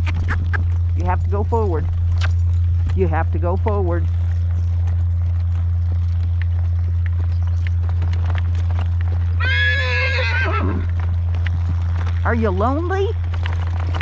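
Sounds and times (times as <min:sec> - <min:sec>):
faint hoofbeats: 0:00.0 - 0:14.0
horse whinnying: 0:09.4 - 0:11.0.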